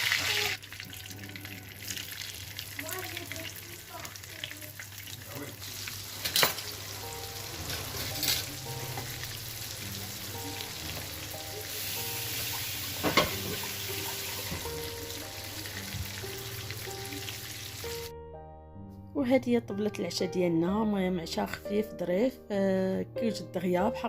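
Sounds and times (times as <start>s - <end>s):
fish frying in hot oil: 0.0s - 18.1s.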